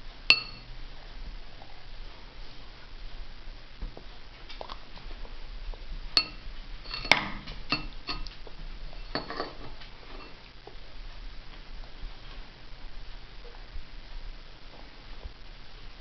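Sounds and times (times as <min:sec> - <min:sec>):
spoon clinking against bowl: 0:00.3 - 0:00.7, 0:06.2 - 0:08.3, 0:09.0 - 0:09.6.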